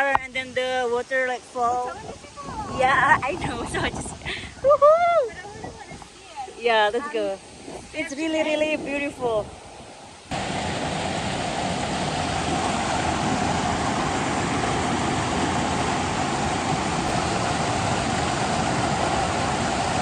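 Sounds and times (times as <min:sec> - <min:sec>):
waterfall rushing: 0:05.4 - 0:20.0.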